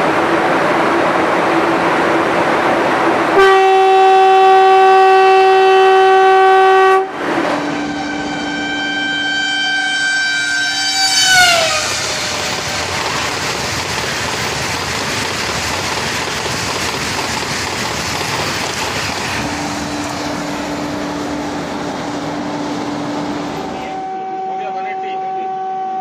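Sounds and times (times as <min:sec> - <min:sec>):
train horn: 0:03.3 - 0:12.6, 0:19.4 - 0:26.0.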